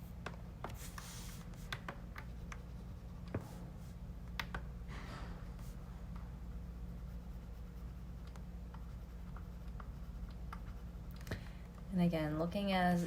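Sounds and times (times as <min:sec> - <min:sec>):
low electrical hum: 0:00.0 - 0:13.0
computer mouse clicks: 0:08.2 - 0:11.4.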